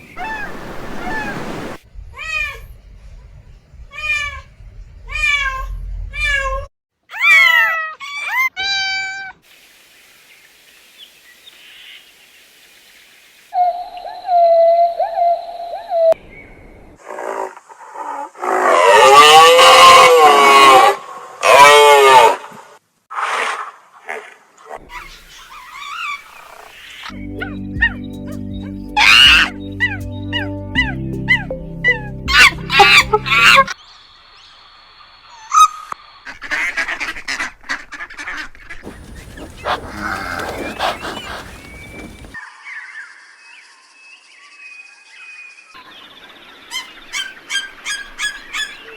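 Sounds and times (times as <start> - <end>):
waterfowl honking: 0.0 - 1.8, 38.8 - 42.4
cow mooing: 38.8 - 42.4.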